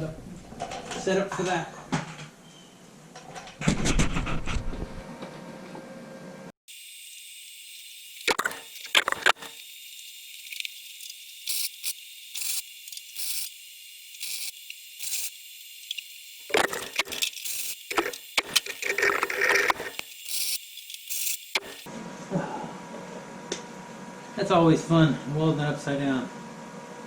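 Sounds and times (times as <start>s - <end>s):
mig welder arc bursts: 6.7s - 21.9s
steady welder hiss: 6.7s - 21.9s.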